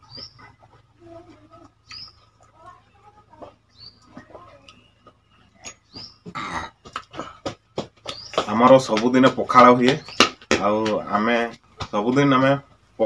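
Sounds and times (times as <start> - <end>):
people eating from steel bowls: 0.0 - 7.6
bird rising chirp: 1.8 - 7.1, 8.1 - 8.5.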